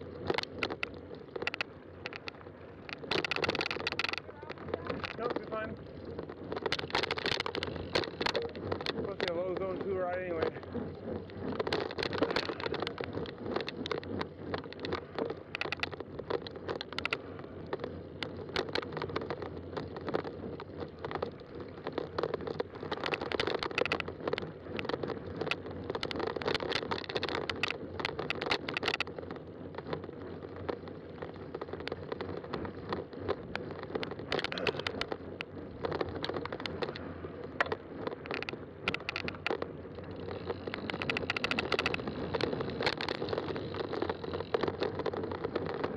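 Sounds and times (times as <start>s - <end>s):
bike tyres rolling on trail: 0.0s - 45.9s
crackles from trail surface: 0.0s - 45.9s.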